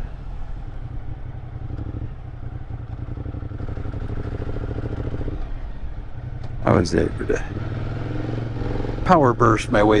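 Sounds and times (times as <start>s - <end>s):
motorcycle engine labouring: 0.0s - 10.0s.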